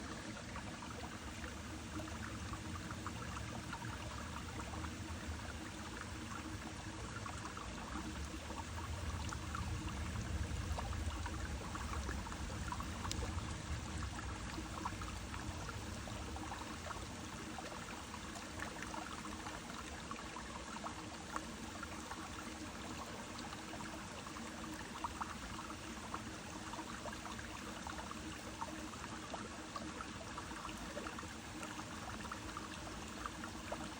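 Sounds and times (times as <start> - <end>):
brook flowing and trickling: 0.0 - 33.9
low rumble: 8.8 - 15.9.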